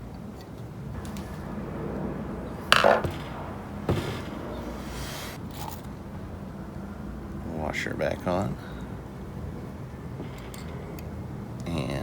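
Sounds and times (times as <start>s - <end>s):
short scrape: 3.9s - 5.8s.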